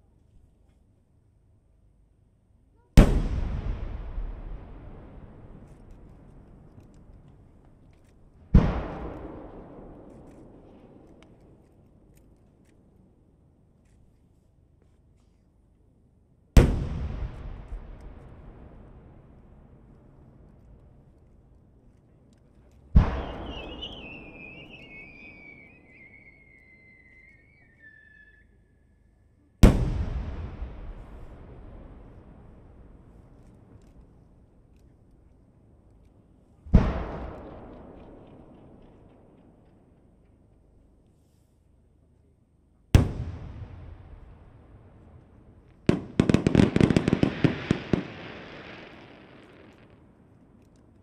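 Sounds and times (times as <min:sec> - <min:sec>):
firework boom with rumbling echo: 0:03.0 - 0:06.7, 0:16.6 - 0:20.4, 0:29.6 - 0:33.8, 0:43.0 - 0:49.0
rapid firework bangs: 0:23.0 - 0:24.8, 0:43.0 - 0:49.9
firework whistle sliding down: 0:23.2 - 0:29.0.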